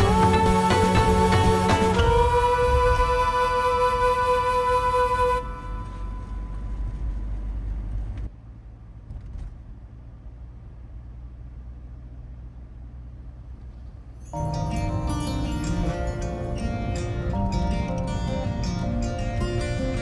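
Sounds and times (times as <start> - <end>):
car road rumble: 0.0 - 20.0.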